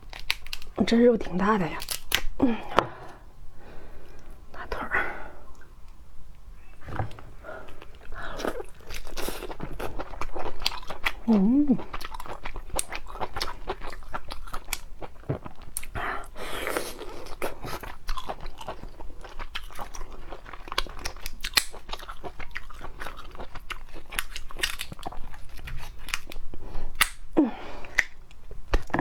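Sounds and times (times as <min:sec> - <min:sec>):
crunching and chewing: 0:00.0 - 0:00.8, 0:01.8 - 0:02.4, 0:06.8 - 0:29.0
shell cracks and clicks: 0:00.1 - 0:00.8, 0:01.8 - 0:02.4, 0:21.5 - 0:21.8, 0:27.0 - 0:27.3.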